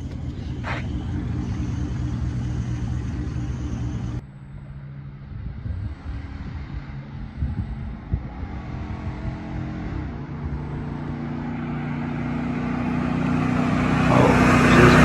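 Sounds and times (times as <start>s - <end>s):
truck engine idling: 0.0s - 4.2s, 12.6s - 15.0s.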